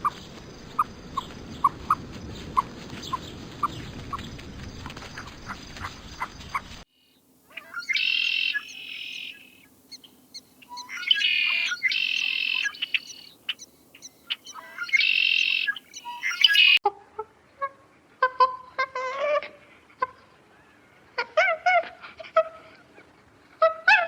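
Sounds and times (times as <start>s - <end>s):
bird giving harsh calls: 7.5s - 16.8s.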